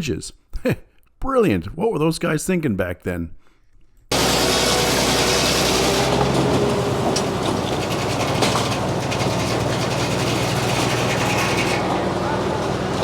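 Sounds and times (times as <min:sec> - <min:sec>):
circular saw cutting log: 0:04.1 - 0:13.0
engine drone: 0:04.1 - 0:13.0.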